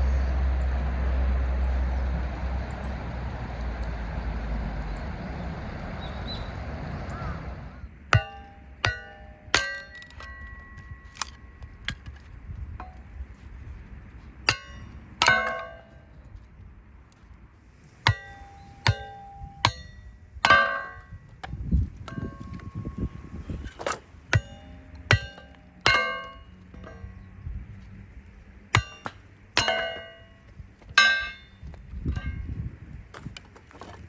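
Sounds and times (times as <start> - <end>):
metal camping gear clanking: 17.8 - 27.4, 28.8 - 32.6.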